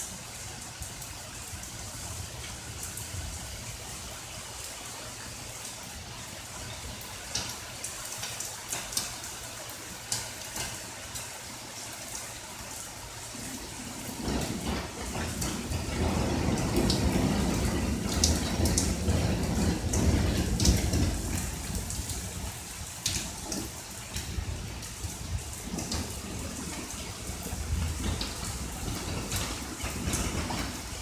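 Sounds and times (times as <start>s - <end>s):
deep rush of water: 0.0s - 31.0s
steady rain: 0.0s - 31.0s
drops ticking and splashing: 6.6s - 31.0s.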